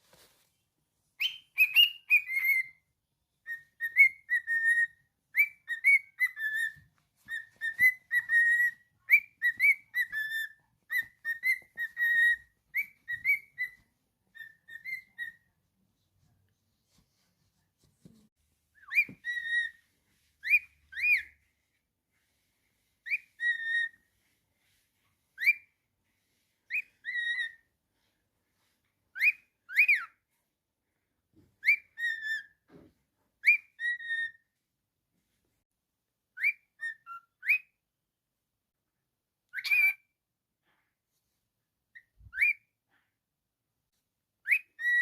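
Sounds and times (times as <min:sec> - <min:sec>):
cockatiel whistling: 0:01.2 - 0:15.6, 0:18.7 - 0:21.8, 0:23.0 - 0:24.3, 0:25.2 - 0:27.7, 0:29.1 - 0:30.3, 0:31.6 - 0:32.8, 0:33.4 - 0:34.6, 0:36.3 - 0:37.8, 0:39.5 - 0:40.1, 0:41.9 - 0:42.8, 0:44.4 - 0:45.0.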